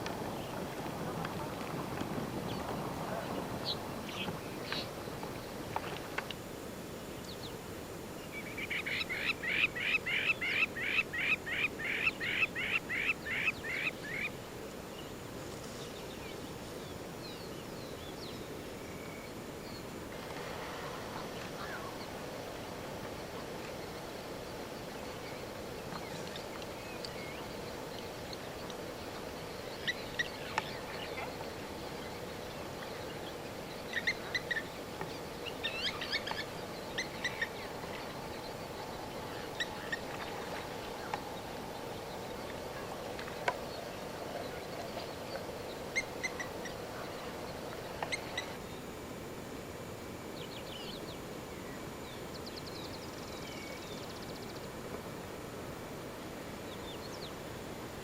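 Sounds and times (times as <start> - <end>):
steady background hiss: 0.0 - 58.0
birds chirping and trilling: 24.8 - 48.7.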